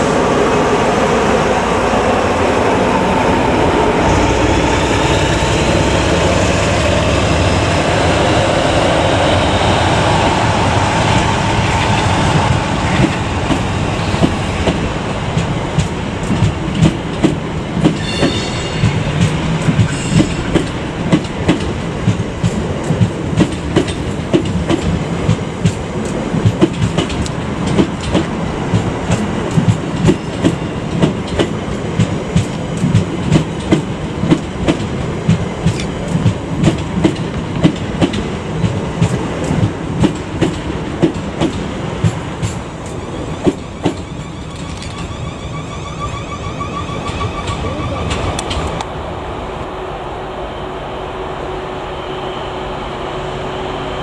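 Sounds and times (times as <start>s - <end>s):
diesel locomotive engine rumbling: 0.0s - 54.0s
train wheels clicking over joints: 10.6s - 45.4s, 47.0s - 48.9s.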